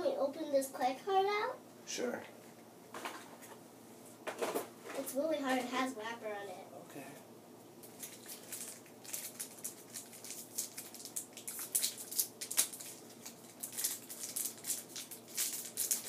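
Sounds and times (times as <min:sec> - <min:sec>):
plastic wrapper crinkling: 0:07.8 - 0:16.0.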